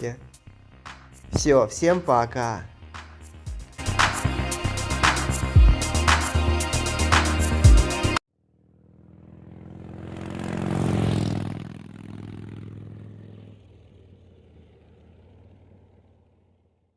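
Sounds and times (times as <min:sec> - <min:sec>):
motorcycle engine passing by: 0:08.4 - 0:16.9.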